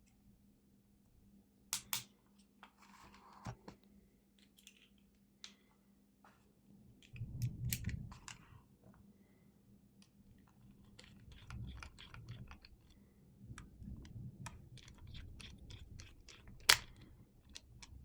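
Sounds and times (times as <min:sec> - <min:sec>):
plastic parts clicking and scraping: 0:10.3 - 0:18.0.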